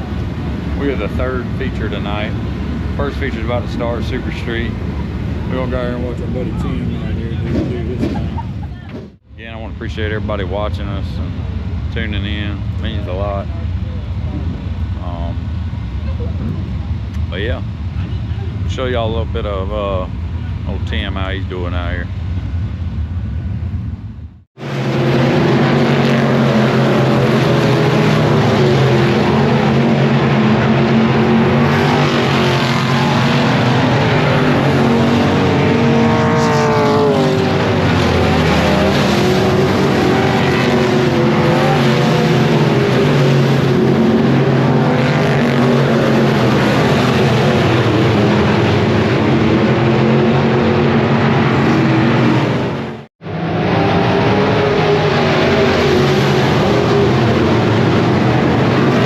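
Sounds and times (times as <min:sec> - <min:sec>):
race car engines at high revs: 0:00.0 - 0:22.0, 0:24.6 - 0:59.0
race car passing by: 0:24.6 - 0:59.0.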